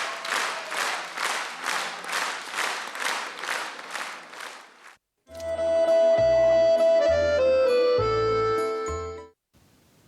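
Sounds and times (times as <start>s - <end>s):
accordion playing: 5.3s - 9.3s.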